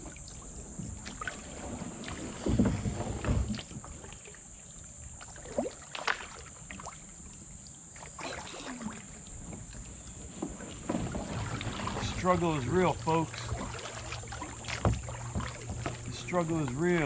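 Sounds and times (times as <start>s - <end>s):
branches scraping against kayak: 1.4s - 4.0s, 9.4s - 17.0s.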